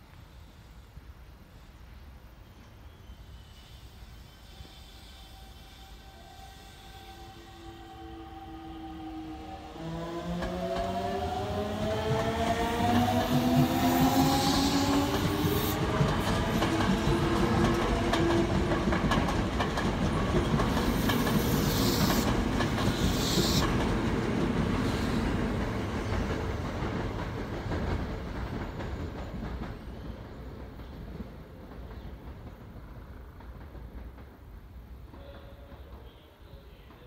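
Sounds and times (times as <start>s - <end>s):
train wheels clacking over rail joints: 12.0s - 37.0s.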